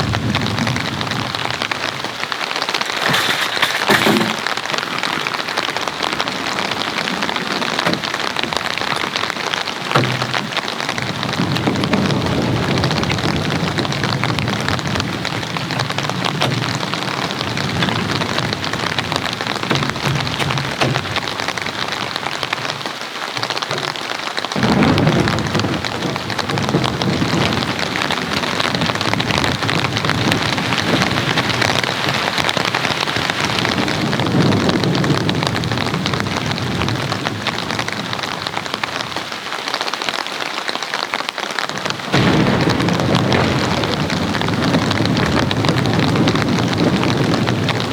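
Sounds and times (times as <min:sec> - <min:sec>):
low rumbling thunder: 0:00.0 - 0:22.7, 0:24.6 - 0:39.2, 0:41.8 - 0:47.9
heavy rain falling: 0:00.0 - 0:47.9.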